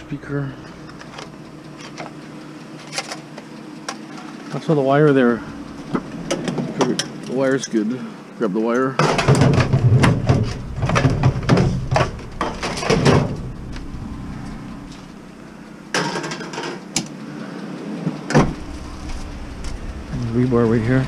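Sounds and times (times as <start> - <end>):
scrap knocking and clattering: 9.0 - 13.9.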